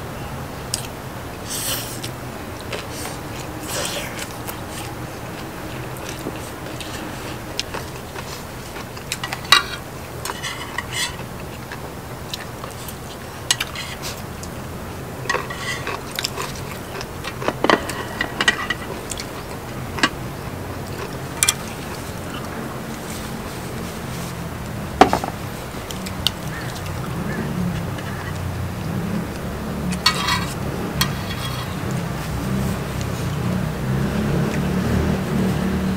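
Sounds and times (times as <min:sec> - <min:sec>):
steady low hum: 0:00.0 - 0:35.9
chewing food: 0:02.0 - 0:14.6, 0:15.2 - 0:34.7
utensils clinking on dishes: 0:06.0 - 0:11.8, 0:15.2 - 0:20.2, 0:29.9 - 0:32.1.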